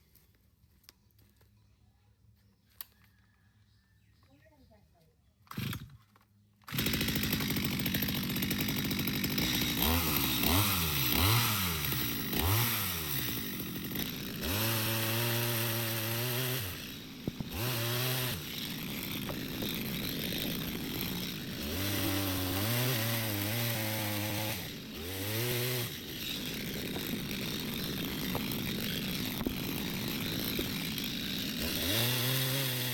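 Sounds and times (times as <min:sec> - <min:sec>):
power saw cutting wood: 0:06.7 - 0:32.9.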